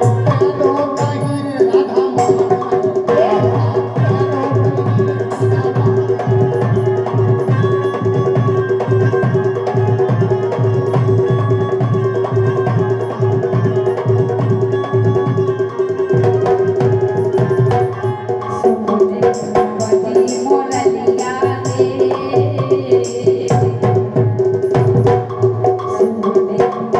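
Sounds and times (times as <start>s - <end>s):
hand drums beating: 0.0s - 26.9s.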